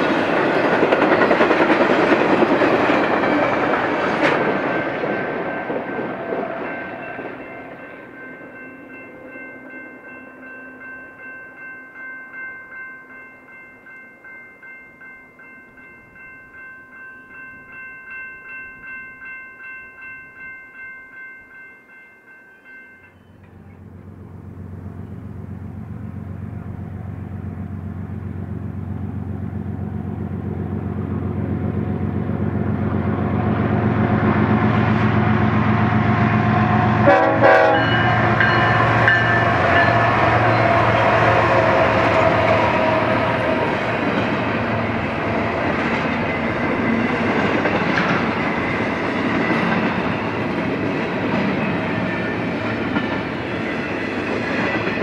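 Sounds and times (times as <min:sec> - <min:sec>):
freight cars wheel and rail clatter: 0:00.0 - 0:09.7, 0:22.5 - 0:55.0
diesel locomotive engine: 0:00.0 - 0:20.5, 0:22.5 - 0:55.0
crossing warning bell ringing: 0:00.0 - 0:55.0.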